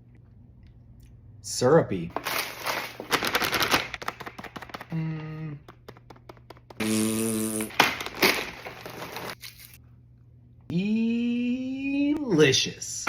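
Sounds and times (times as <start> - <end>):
person humming: 4.9 - 5.8, 6.8 - 7.8.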